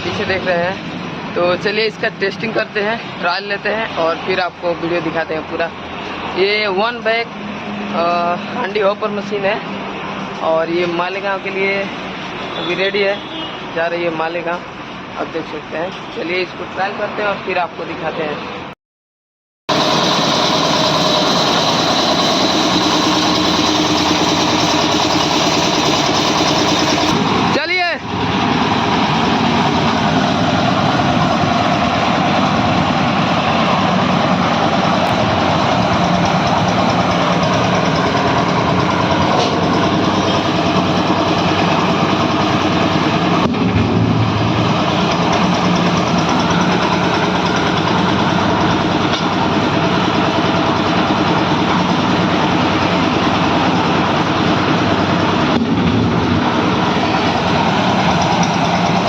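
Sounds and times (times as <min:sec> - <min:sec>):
concrete mixer running: 0:19.7 - 0:59.0.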